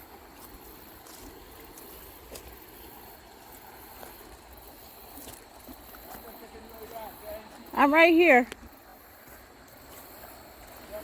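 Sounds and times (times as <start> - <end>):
creek water flowing: 0.0 - 11.0.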